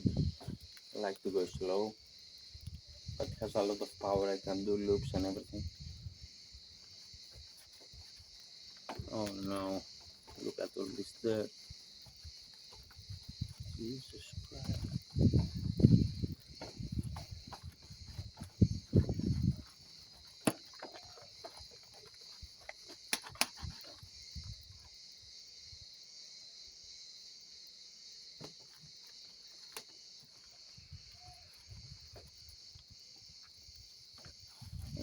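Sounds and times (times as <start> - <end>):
crickets chirping: 0.0 - 35.0
clicks and knocks of handling: 19.6 - 24.0.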